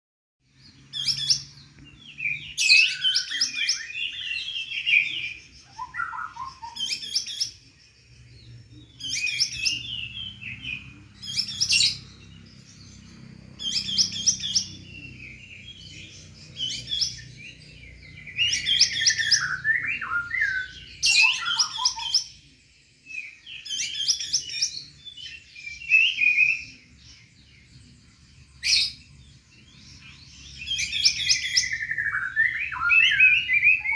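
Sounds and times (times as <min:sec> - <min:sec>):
songbird warbling: 0:00.7 - 0:22.4.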